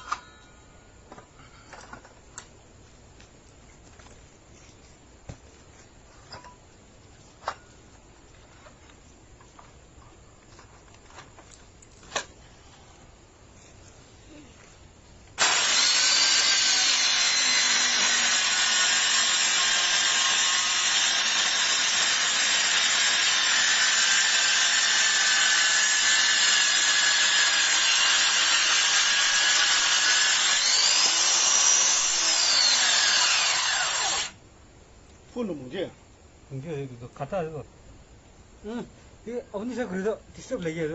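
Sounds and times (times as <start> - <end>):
circular saw cutting wood: 15.4 - 34.4.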